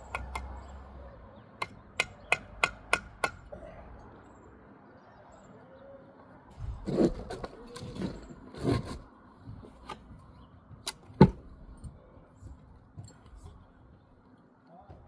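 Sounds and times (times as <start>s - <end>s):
scraping: 6.6s - 9.1s.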